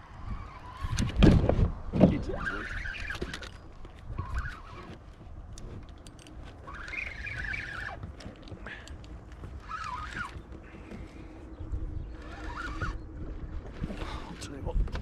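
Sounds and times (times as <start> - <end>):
wind and water rumble: 0.0 - 15.0
water birds calling: 2.4 - 5.2, 6.3 - 14.7
clicks and knocks in kayak: 2.9 - 11.4, 12.5 - 15.0.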